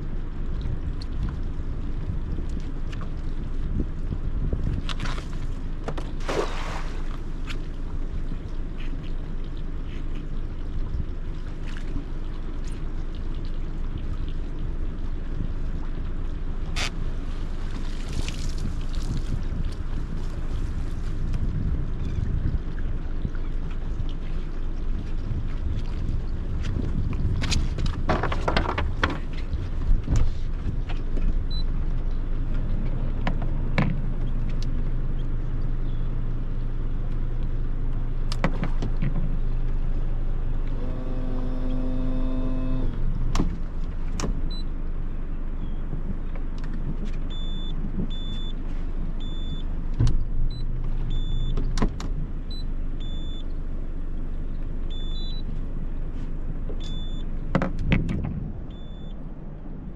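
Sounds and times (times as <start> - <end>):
boat motor running: 0.0 - 59.9
short pitched hum: 39.4 - 44.7
short high beeps: 58.7 - 59.2.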